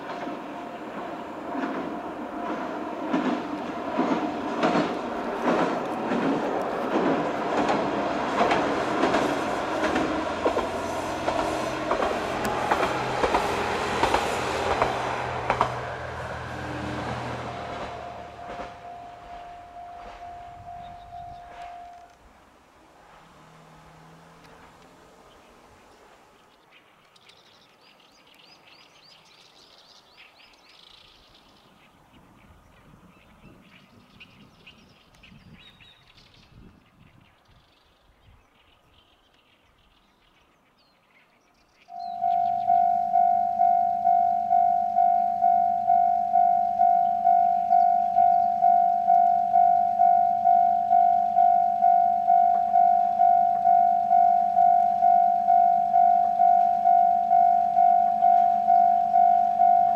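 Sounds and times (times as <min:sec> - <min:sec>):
wheels clacking over rail joints: 0:00.0 - 0:26.5
low engine hum: 0:00.0 - 0:26.6, 0:41.9 - 0:59.9
faint low rumbling: 0:00.1 - 0:26.4
small bird chirping: 0:19.8 - 0:22.0, 0:46.6 - 0:50.4.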